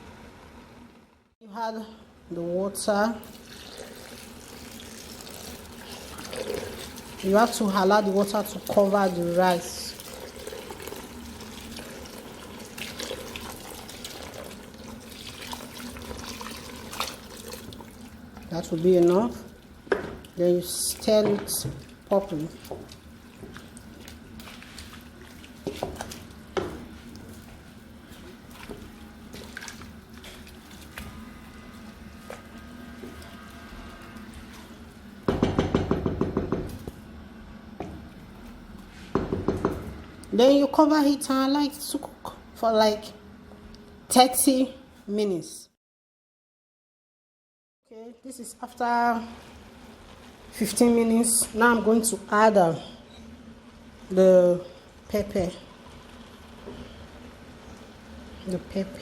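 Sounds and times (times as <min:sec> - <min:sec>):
water pouring into a pot: 0:03.2 - 0:07.8, 0:08.4 - 0:20.4
spoon knocking against pot: 0:35.3 - 0:36.8.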